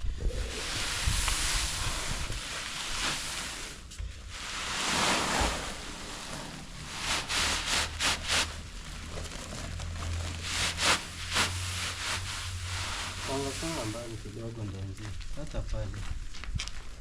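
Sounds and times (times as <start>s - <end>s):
wind buffeting microphone: 0.0s - 2.6s
short sharp rustles: 0.6s - 14.2s.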